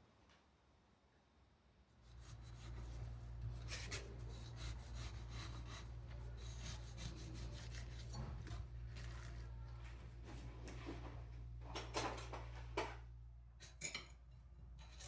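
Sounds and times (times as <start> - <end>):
steady low hum: 1.9 - 13.7
rubbing and scraping handling: 2.0 - 9.6.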